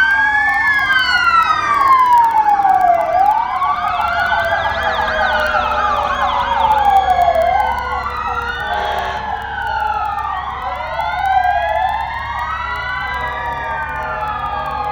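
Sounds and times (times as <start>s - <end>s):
engines rumbling: 0.0s - 14.9s
fast warbling siren: 0.0s - 14.9s
fire truck sirens wailing: 0.0s - 14.9s.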